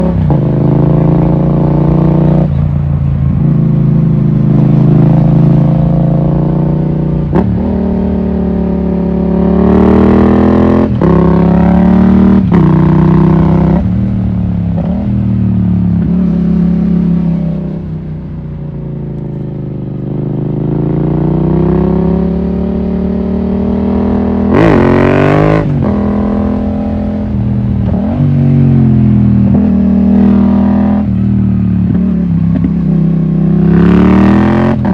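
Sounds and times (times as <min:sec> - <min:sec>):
motorcycle engine shifting gears: 0:18.7 - 0:34.9.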